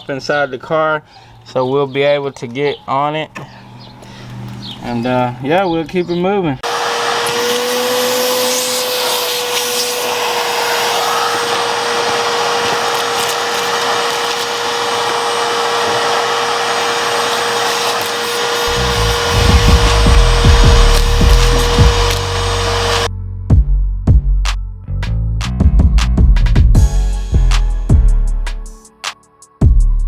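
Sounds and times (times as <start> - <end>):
electric grinder on sheet metal: 6.6 - 23.1
music with heavy bass: 18.7 - 22.3, 23.1 - 30.0.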